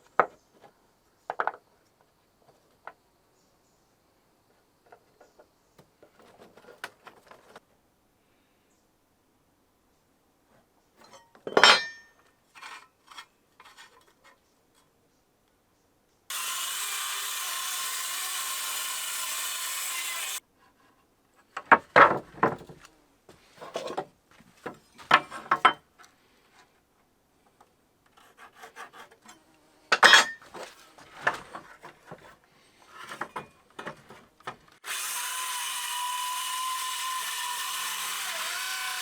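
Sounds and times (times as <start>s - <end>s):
scraping and rasping on wood: 28.1s - 29.4s.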